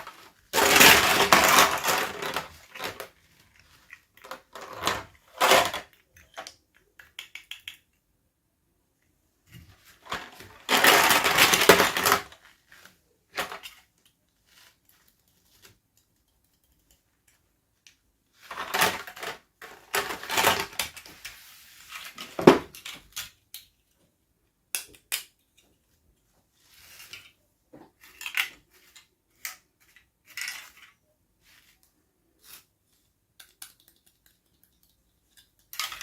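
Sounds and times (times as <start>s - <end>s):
packaging crinkling and rustling: 0.0s - 5.9s, 9.9s - 15.7s, 18.5s - 22.9s
small clicks and taps: 6.0s - 8.1s, 33.3s - 36.0s.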